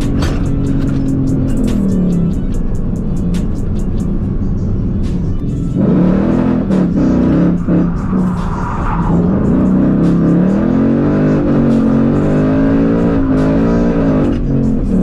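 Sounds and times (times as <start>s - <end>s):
music: 0.0s - 15.0s
car engine revving hard: 5.7s - 15.0s.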